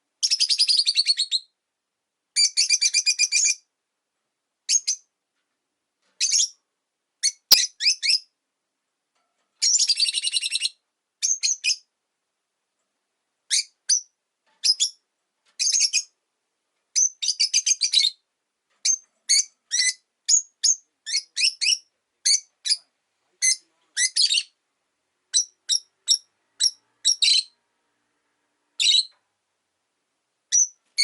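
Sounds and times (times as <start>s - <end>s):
lovebirds chirping: 7.2s - 8.3s, 15.6s - 16.2s, 17.0s - 18.2s, 18.8s - 24.6s, 25.3s - 27.6s, 28.8s - 29.2s, 30.5s - 31.0s.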